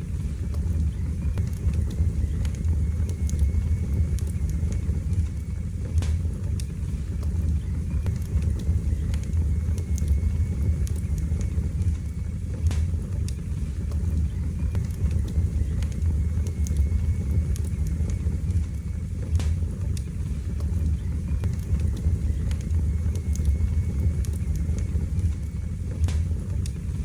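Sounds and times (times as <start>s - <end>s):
fire crackling and popping: 0.0s - 27.0s
low rumble of flames: 0.0s - 27.0s.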